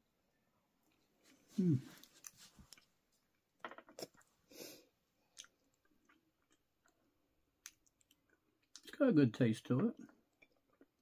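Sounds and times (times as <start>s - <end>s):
faint chewing: 0.8s - 4.3s, 5.2s - 8.9s.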